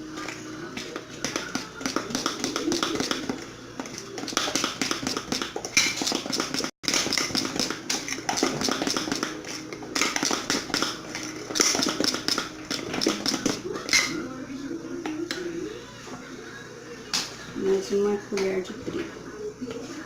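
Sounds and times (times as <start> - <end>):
spoon stirring batter in bowl: 0.8 - 14.2.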